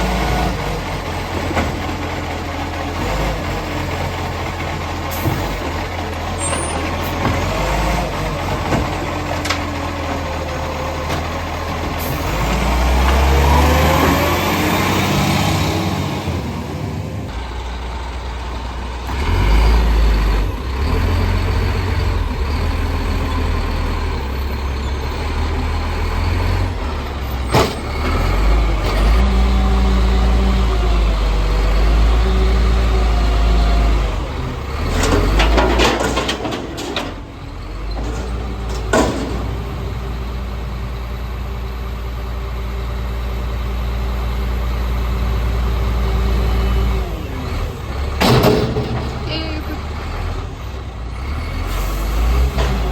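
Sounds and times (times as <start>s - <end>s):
garbage truck diesel engine: 0.0s - 52.9s.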